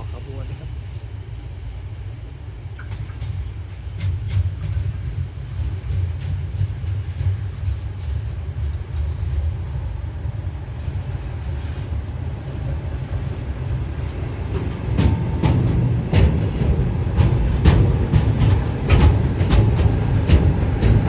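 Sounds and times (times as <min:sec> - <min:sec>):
train rumble: 0:00.0 - 0:21.0
train wheels clacking on rail joints: 0:02.8 - 0:21.0.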